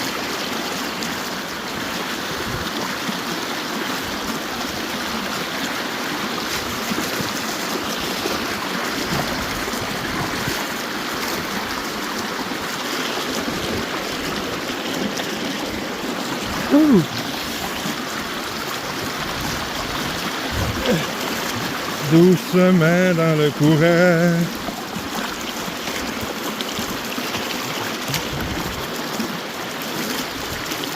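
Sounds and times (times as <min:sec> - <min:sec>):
river running over rocks: 0:00.0 - 0:30.9
person exclaiming: 0:16.6 - 0:17.2, 0:20.6 - 0:21.2, 0:22.0 - 0:24.5.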